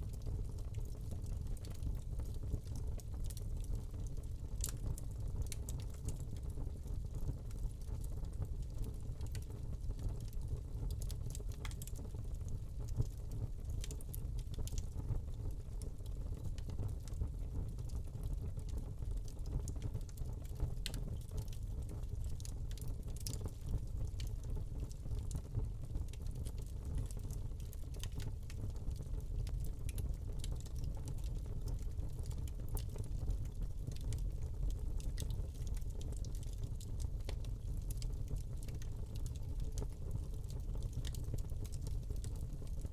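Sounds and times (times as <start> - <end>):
burning log crackling and popping: 0.0 - 42.9
low rumble of flames: 0.0 - 42.9.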